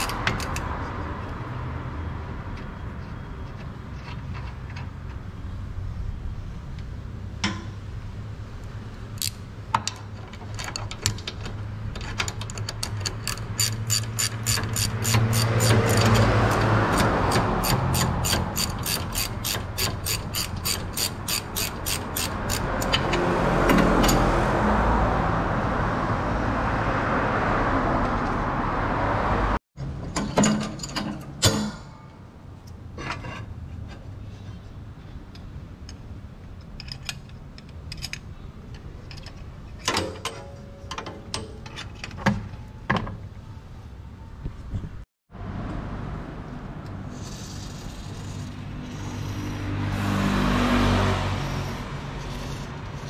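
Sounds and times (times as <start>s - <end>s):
ratchet wrench clicking: 0.0s - 0.7s, 12.4s - 23.2s.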